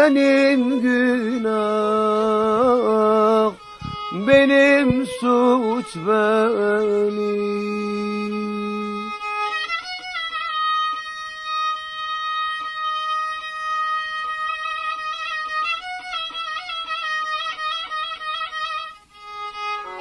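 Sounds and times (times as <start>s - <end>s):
person singing: 0.0s - 9.4s
violin sustained high note: 0.6s - 20.0s.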